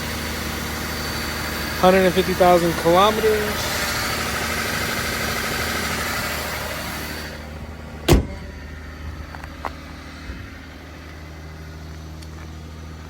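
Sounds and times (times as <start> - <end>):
car engine idling: 0.0 - 13.0
loud sharp thump: 8.1 - 8.6.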